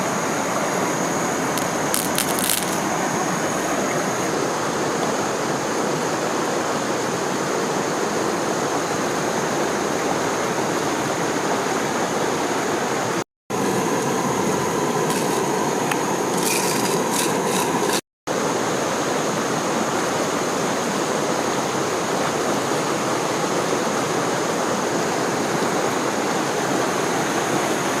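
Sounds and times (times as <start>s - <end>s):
stream rushing water: 0.0s - 28.0s.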